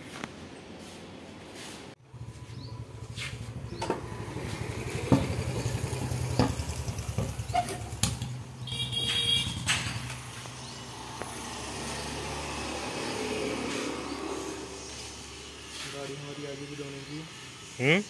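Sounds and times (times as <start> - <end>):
motorcycle engine idling: 2.0 - 10.6
sharp knocks and clanks: 3.1 - 10.6.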